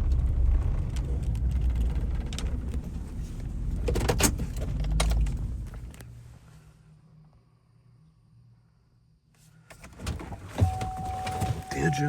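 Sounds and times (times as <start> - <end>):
vehicle road rumble: 0.0 - 6.8, 9.7 - 12.0.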